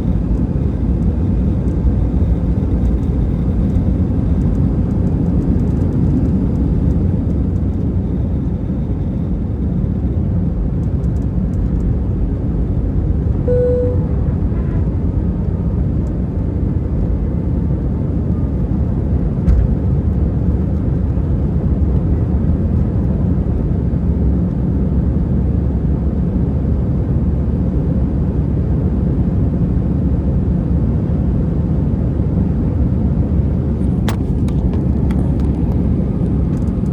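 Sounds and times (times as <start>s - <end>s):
jet cabin engine rumble: 0.0s - 36.9s
short single tone: 13.4s - 15.1s.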